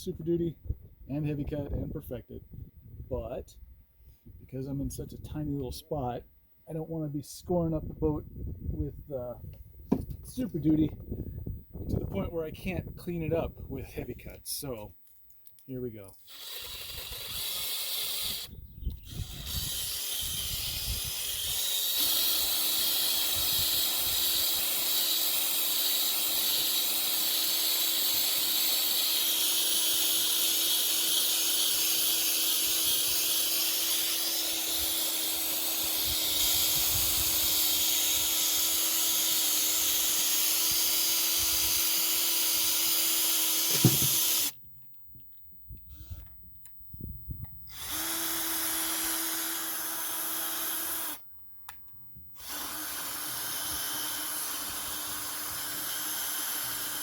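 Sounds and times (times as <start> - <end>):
drill motor hum: 16.2 - 44.6, 47.7 - 51.2, 52.4 - 57.0.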